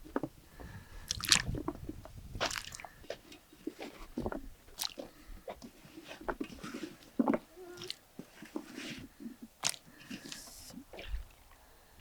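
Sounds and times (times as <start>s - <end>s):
food crunching and squishing: 1.0s - 1.8s, 2.4s - 8.0s, 9.6s - 10.4s.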